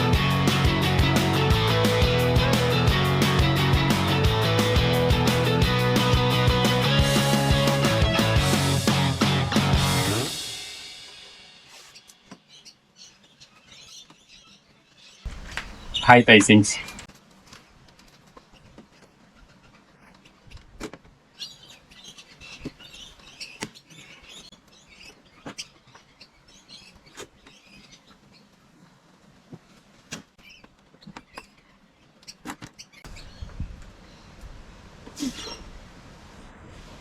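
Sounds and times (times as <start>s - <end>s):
faint bird chirping: 15.3s - 17.1s.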